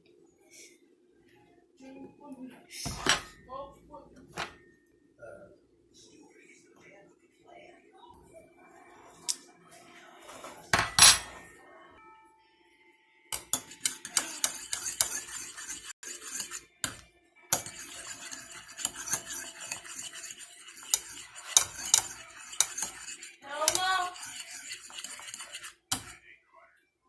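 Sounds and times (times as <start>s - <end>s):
spoon scraping a bowl: 13.4s - 26.2s.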